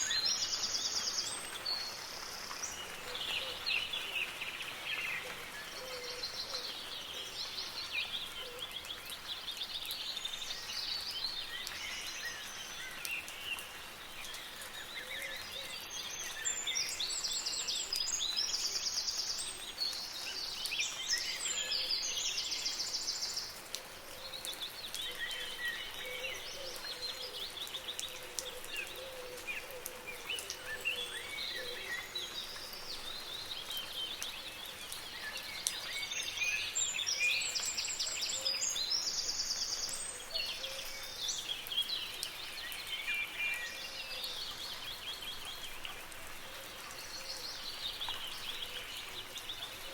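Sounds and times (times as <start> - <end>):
soft rain pattering: 0.0 - 49.9
songbirds chirping and warbling: 0.0 - 49.9.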